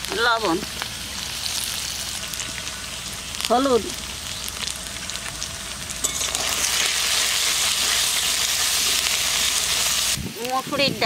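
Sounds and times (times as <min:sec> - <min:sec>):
food sizzling in hot oil: 0:00.0 - 0:11.0
metal spoon stirring: 0:06.0 - 0:06.9.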